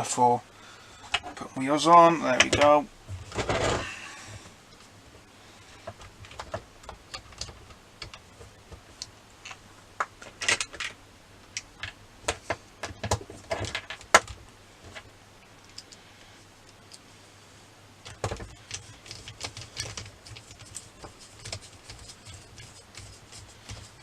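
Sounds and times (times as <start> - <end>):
plastic parts clattering: 2.4 - 4.0, 10.2 - 11.0, 11.8 - 15.1, 18.0 - 24.0.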